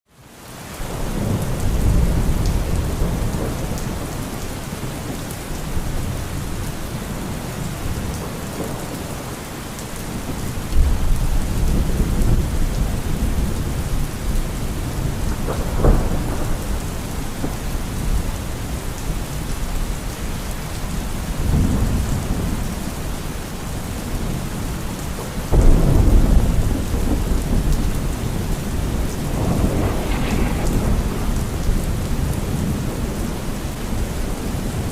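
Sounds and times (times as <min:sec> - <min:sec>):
steady rain: 0:00.1 - 0:34.9
rolling thunder: 0:00.9 - 0:09.3, 0:10.1 - 0:19.9, 0:25.4 - 0:34.9
sharp thunder crack: 0:25.6 - 0:33.6.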